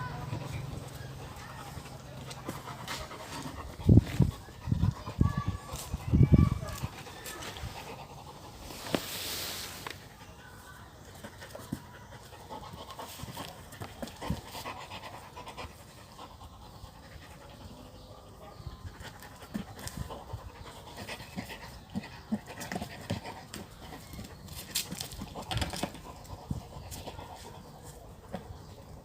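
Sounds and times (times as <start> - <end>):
dog panting: 0.1 - 5.4, 6.8 - 8.7, 11.1 - 24.4, 25.1 - 29.0.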